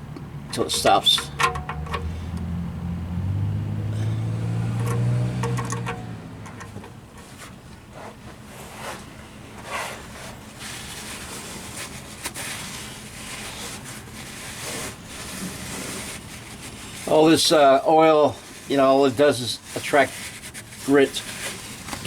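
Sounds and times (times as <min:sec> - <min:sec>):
passing car engine hum: 0:00.0 - 0:07.2
faint rubbing and scraping: 0:04.2 - 0:22.0.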